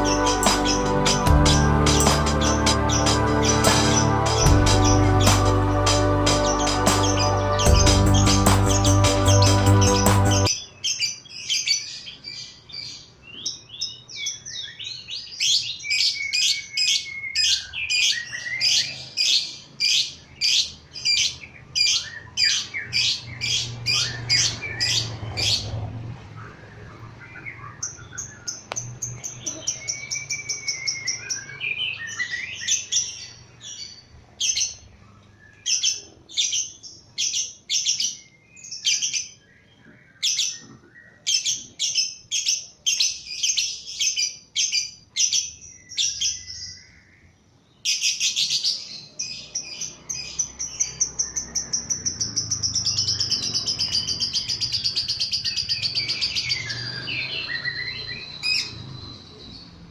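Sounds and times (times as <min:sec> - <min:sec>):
lovebird chirping and trilling: 0:00.0 - 0:05.6, 0:06.3 - 0:25.8, 0:27.3 - 0:34.8, 0:47.8 - 0:59.8.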